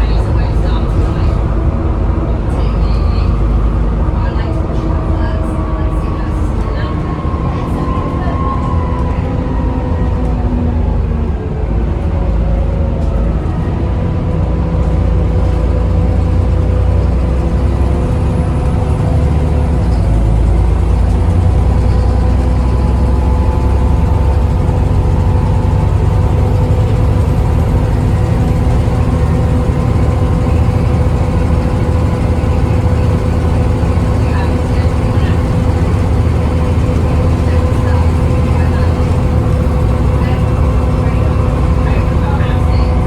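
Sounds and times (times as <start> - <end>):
bus engine rumbling: 0.0 - 43.0
cooling fans whining: 13.2 - 43.0.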